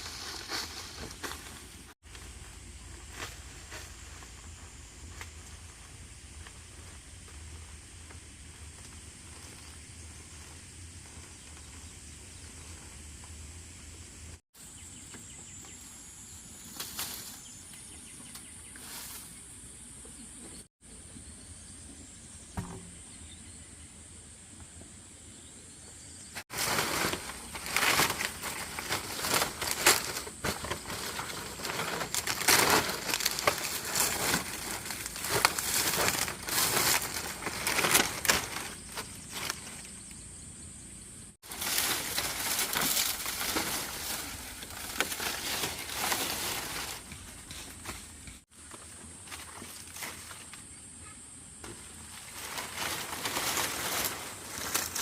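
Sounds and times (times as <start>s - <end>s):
rustling and crackling: 0.0s - 14.2s, 26.4s - 40.2s, 41.4s - 50.7s, 51.6s - 55.0s.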